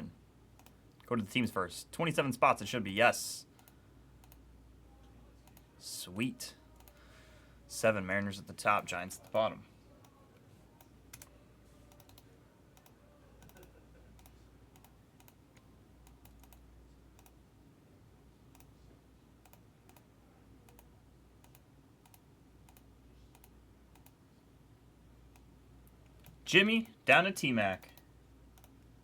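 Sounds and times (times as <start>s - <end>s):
low steady hum: 0.0s - 29.0s
keyboard typing: 11.1s - 11.3s, 11.9s - 12.2s, 12.8s - 16.6s.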